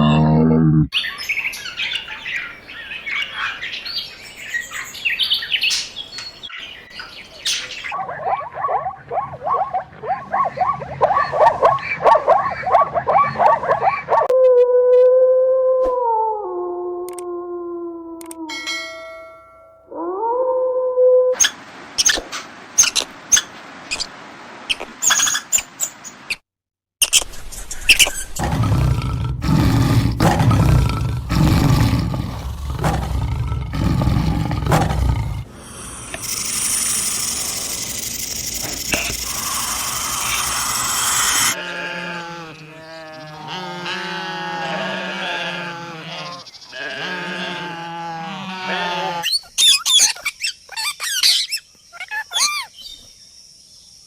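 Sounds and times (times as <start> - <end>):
big cat roaring: 0.0 - 0.9, 28.4 - 36.4
pitched animal call: 0.0 - 1.0, 28.3 - 50.1
animal hissing: 28.3 - 49.2.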